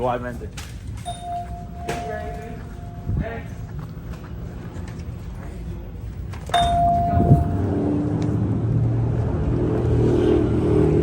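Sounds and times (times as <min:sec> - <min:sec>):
electronic chime: 0:01.1 - 0:03.2, 0:06.6 - 0:08.0.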